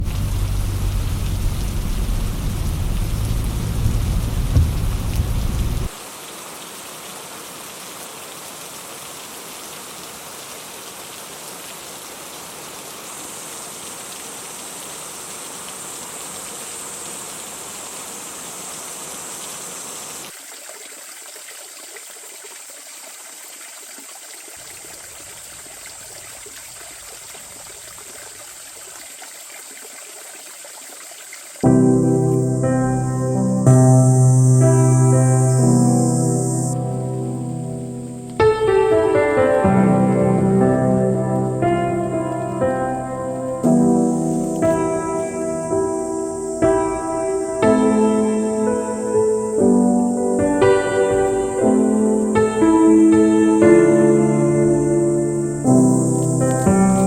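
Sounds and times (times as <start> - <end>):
loud low rumble: 0.0 - 5.9
rain-like hiss: 0.0 - 57.0
high insect trill: 12.5 - 20.3, 31.3 - 57.0.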